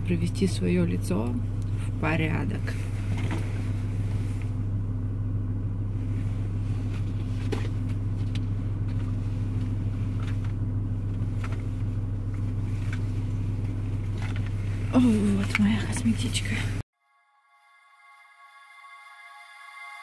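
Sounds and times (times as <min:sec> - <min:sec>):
car engine idling: 0:00.0 - 0:16.8.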